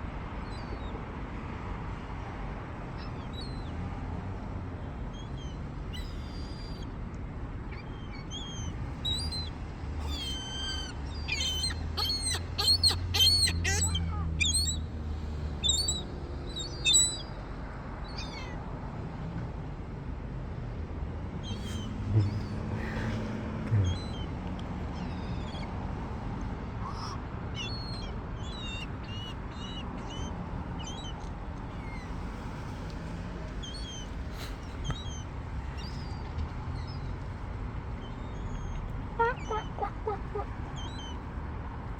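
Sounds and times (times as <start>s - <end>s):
gulls calling: 7.7s - 14.9s, 15.6s - 17.4s, 18.0s - 18.6s, 21.4s - 32.5s, 33.4s - 41.4s.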